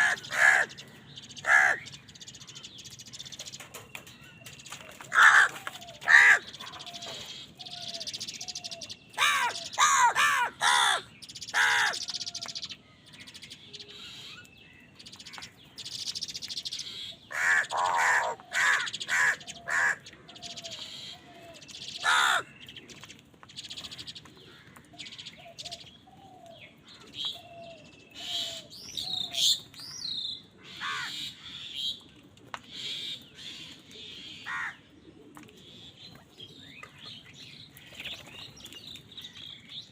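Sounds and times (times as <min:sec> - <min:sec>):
crows cawing: 0:00.0 - 0:01.9, 0:05.1 - 0:08.0, 0:09.2 - 0:12.7, 0:17.3 - 0:22.6, 0:30.6 - 0:31.8, 0:34.4 - 0:34.8
small birds chirping: 0:00.0 - 0:39.9.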